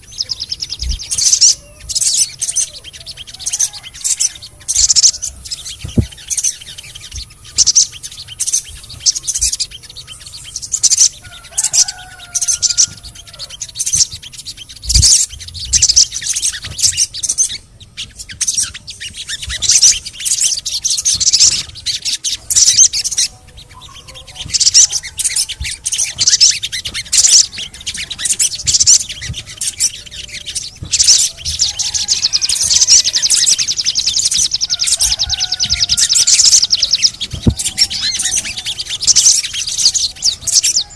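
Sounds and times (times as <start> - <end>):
songbird chirping and trilling: 0.0 - 40.9.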